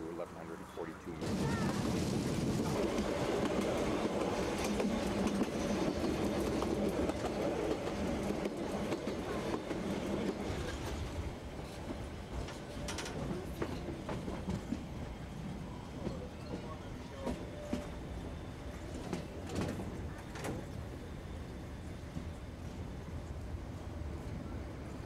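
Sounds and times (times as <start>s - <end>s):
train wheels rumbling on rail: 0.0s - 25.0s
rail joint clicks: 2.9s - 14.9s, 18.8s - 20.9s.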